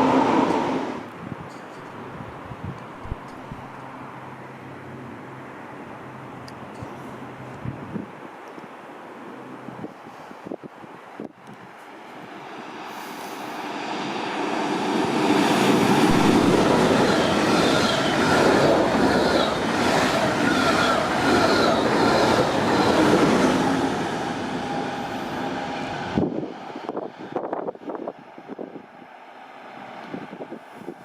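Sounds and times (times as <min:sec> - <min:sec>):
train wheel and rail noise: 0:00.0 - 0:31.0.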